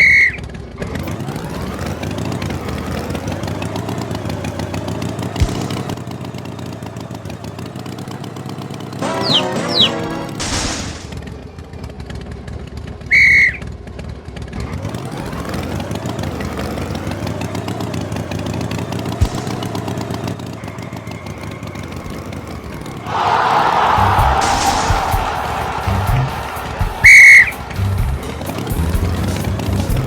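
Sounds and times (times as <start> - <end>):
high whistle-like toot: 0.0 - 0.4, 9.0 - 10.2, 13.1 - 13.7, 23.1 - 27.9
tractor engine running: 0.0 - 30.0.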